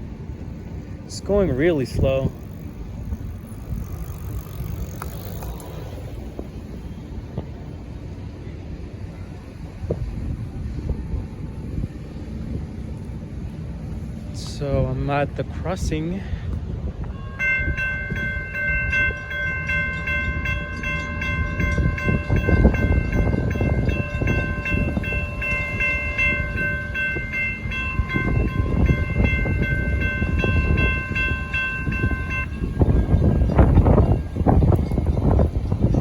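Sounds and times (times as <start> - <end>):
crossing warning bell ringing: 0.0 - 7.1, 16.8 - 36.0.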